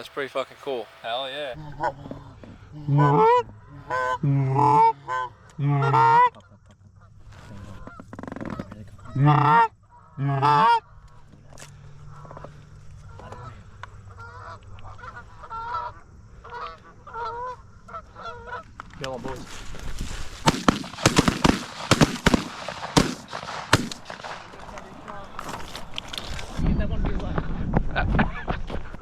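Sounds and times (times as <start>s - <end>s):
goose honking and clucking: 0.0s - 11.0s, 13.1s - 18.7s.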